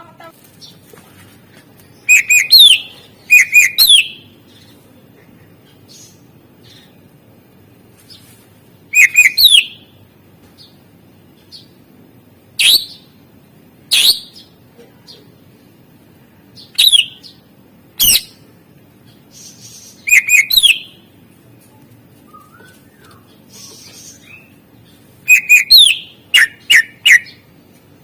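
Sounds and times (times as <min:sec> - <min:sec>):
bird calling sharp whistled notes: 0:02.1 - 0:04.2, 0:09.0 - 0:09.8, 0:16.8 - 0:17.2, 0:20.0 - 0:20.9, 0:25.3 - 0:27.4.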